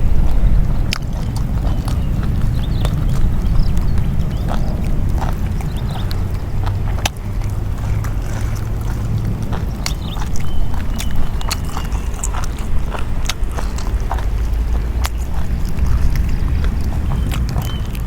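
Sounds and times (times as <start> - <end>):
wind rumbling on microphone: 0.0 - 18.0
small clicks and crunches: 0.8 - 18.0.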